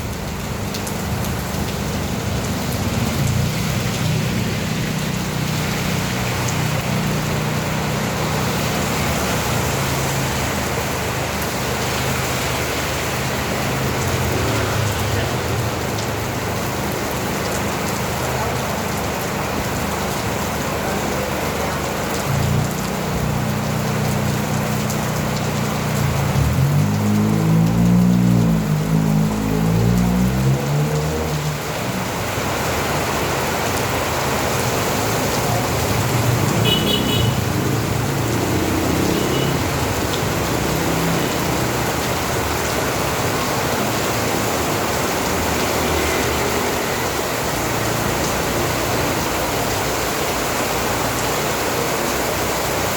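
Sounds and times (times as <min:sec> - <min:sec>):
rain splashing on surfaces: 0:00.0 - 0:52.9
vehicle engine humming: 0:22.0 - 0:51.6.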